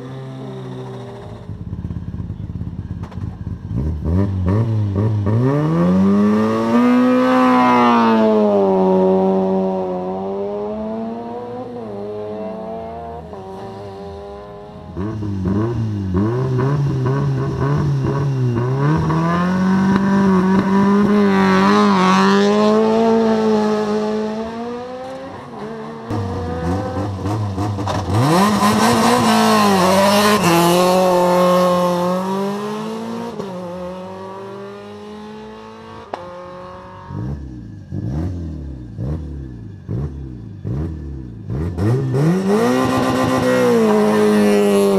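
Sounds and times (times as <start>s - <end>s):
rally car engines accelerating: 0.0s - 44.9s.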